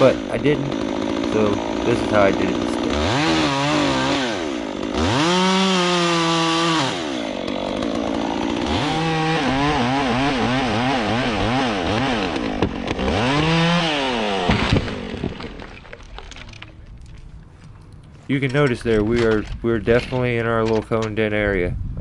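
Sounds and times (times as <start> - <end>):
chainsaw cutting through wood: 0.0 - 16.7.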